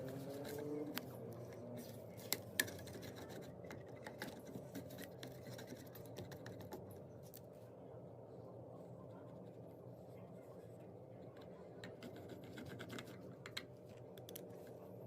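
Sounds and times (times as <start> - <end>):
faint light clicks and scratches: 0.0 - 7.5, 11.2 - 14.8
low steady hum: 0.0 - 15.0.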